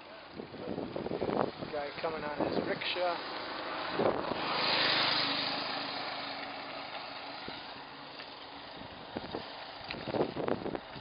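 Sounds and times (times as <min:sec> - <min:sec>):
wind noise on microphone: 0:00.3 - 0:03.0, 0:03.8 - 0:04.8, 0:08.7 - 0:11.0
small engine vehicle passing: 0:01.8 - 0:11.0.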